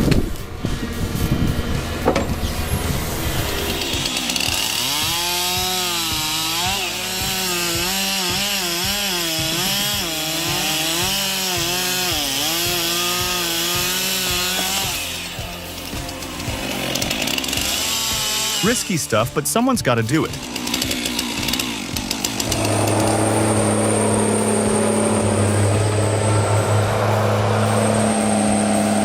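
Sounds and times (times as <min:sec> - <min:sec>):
chainsaw cutting wood: 0:00.0 - 0:29.0.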